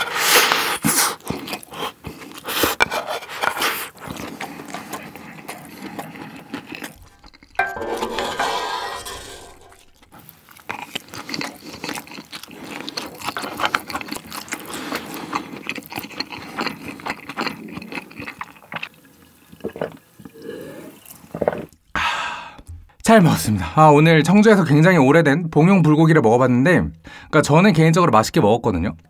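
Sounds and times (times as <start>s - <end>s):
close chewing: 0.0s - 7.6s, 9.8s - 21.9s
wooden spoon scraping metal pan: 7.6s - 10.0s.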